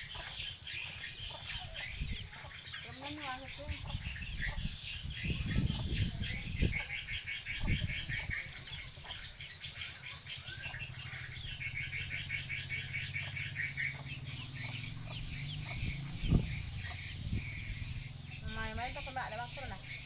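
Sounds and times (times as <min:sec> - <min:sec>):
swiftlets twittering: 0:05.0 - 0:20.0.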